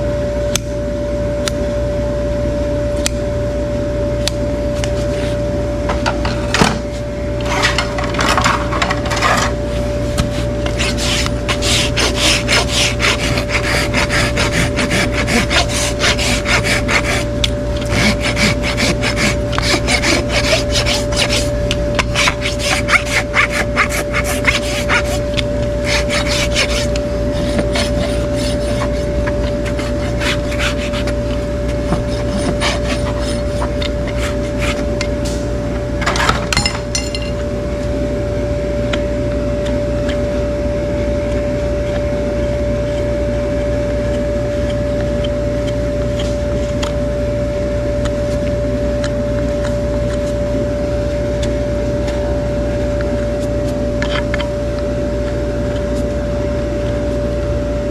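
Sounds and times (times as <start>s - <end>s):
steady hum: 0.0s - 57.9s
hoof horn being scraped: 7.4s - 35.4s, 41.1s - 47.3s.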